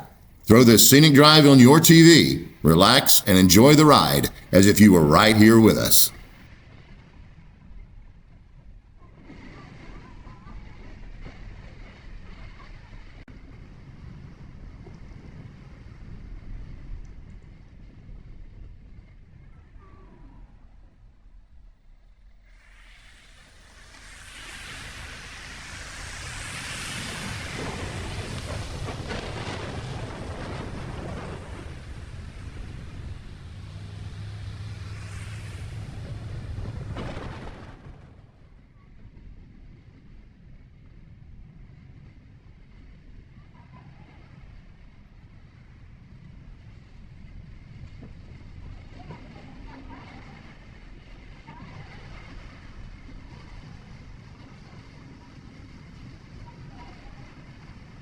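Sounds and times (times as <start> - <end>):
vehicle engine and road noise: 32.7 - 37.0.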